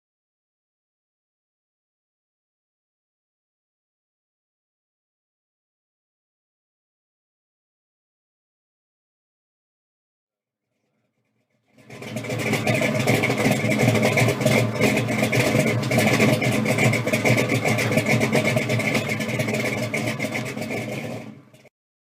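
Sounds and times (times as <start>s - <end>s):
car engine running: 11.7s - 21.7s.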